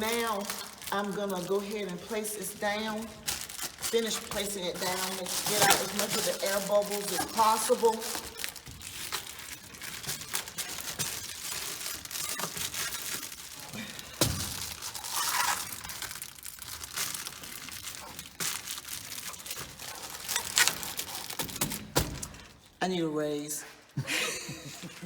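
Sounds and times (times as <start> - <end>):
insulation sheeting crinkling: 0.0 - 22.8.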